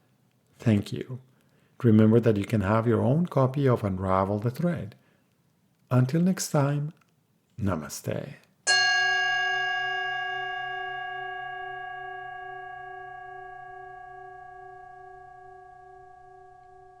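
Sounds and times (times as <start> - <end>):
struck bell ringing: 8.7 - 17.0.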